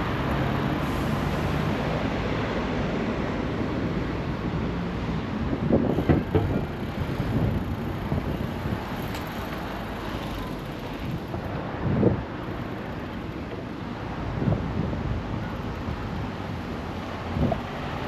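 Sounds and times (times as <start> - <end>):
street noise rushing: 0.0 - 18.0
wind buffeting microphone: 5.3 - 13.4.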